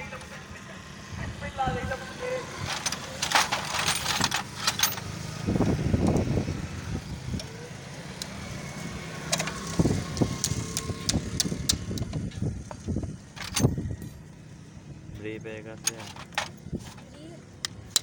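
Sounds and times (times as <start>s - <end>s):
low hum of vehicles: 0.0s - 18.0s
metal hand tools clinking: 2.7s - 5.2s.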